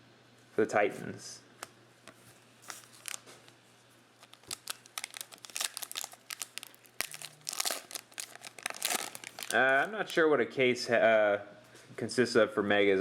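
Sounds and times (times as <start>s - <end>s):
wrapper crinkling: 2.6s - 3.6s, 4.2s - 10.2s.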